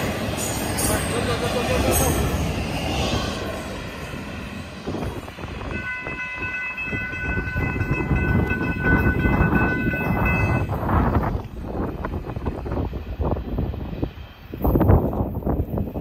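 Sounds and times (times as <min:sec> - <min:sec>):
freight train rumbling: 0:00.0 - 0:16.0
train horn long blast: 0:05.6 - 0:10.9.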